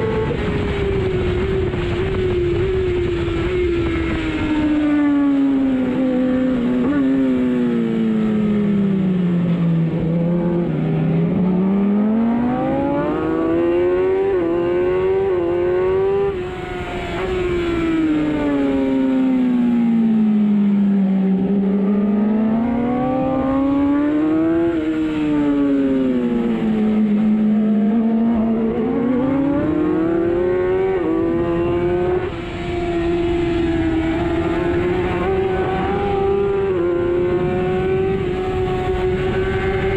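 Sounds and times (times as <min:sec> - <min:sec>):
racing motorcycle engine: 0:00.0 - 0:39.9.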